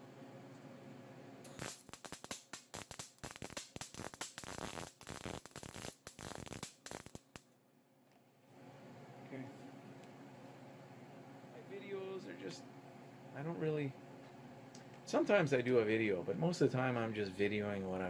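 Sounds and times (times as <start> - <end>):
welding arc crackling: 1.4 - 7.5.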